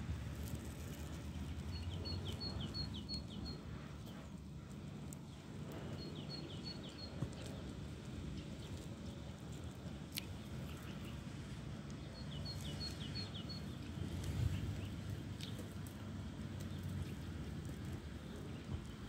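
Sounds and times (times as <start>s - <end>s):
low outdoor rumble: 0.0s - 19.0s
small bird chirping: 1.4s - 3.6s, 6.0s - 7.5s, 12.0s - 15.7s.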